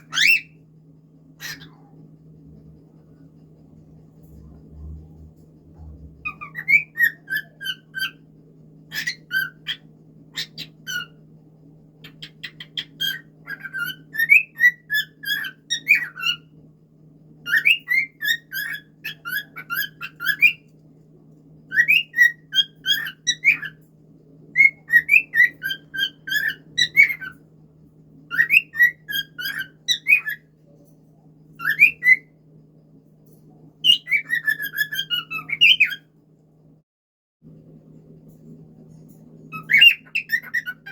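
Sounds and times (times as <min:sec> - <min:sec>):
cockatiel whistling: 0:00.0 - 0:00.6, 0:06.2 - 0:08.2, 0:08.9 - 0:09.8, 0:12.1 - 0:16.4, 0:17.5 - 0:20.6, 0:21.7 - 0:23.8, 0:24.6 - 0:27.4, 0:28.3 - 0:30.4, 0:31.6 - 0:32.3, 0:33.8 - 0:36.0, 0:39.5 - 0:40.9.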